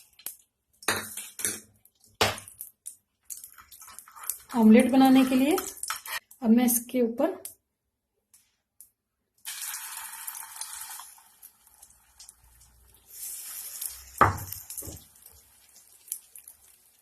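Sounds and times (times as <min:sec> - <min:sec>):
egg mixture sizzling on hot pan: 0:09.4 - 0:17.0.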